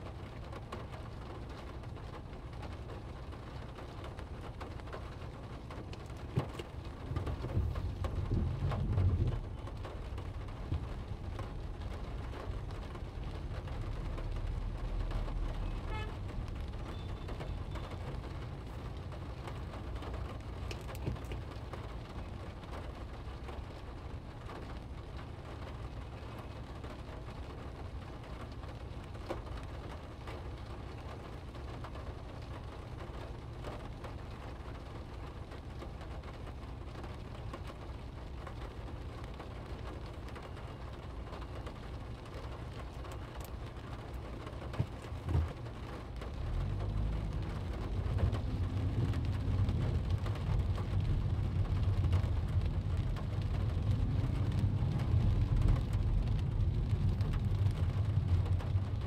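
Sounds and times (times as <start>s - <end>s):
rain on a car: 0.0s - 59.0s
raindrop ticks: 0.0s - 59.0s
steady low rumble: 4.3s - 15.6s, 41.1s - 59.0s.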